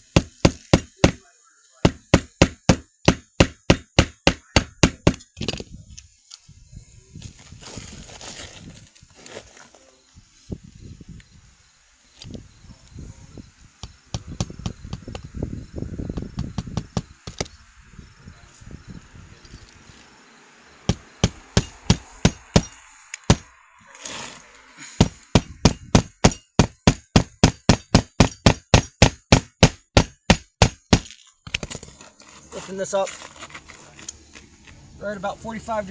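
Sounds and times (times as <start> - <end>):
hammer striking roofing nails: 0.0 - 1.2, 1.8 - 5.6, 16.1 - 17.5, 20.9 - 23.5, 25.0 - 31.8
shingle rustling and scraping: 4.7 - 10.0, 20.8 - 27.2, 30.2 - 35.9.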